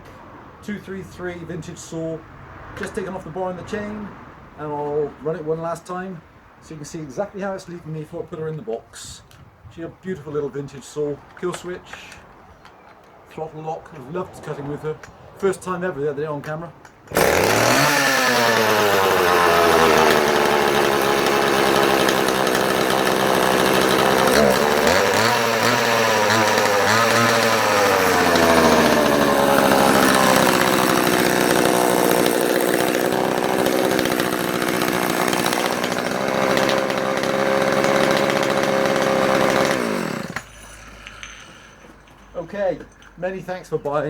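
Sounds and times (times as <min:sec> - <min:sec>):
chainsaw engine running: 0:17.1 - 0:40.5.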